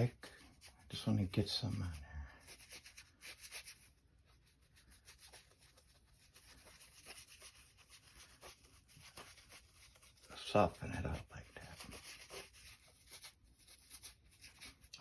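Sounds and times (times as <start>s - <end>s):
paintbrush dabbing on paper: 0.5s - 14.9s.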